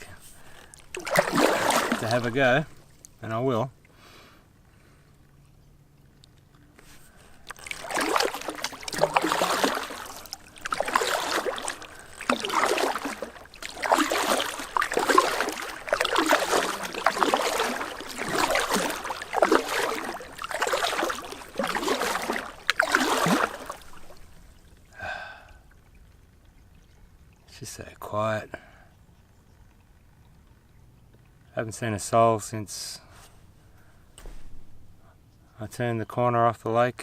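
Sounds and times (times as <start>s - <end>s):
paddle strokes swishing in water: 0.0s - 3.2s, 6.8s - 24.8s.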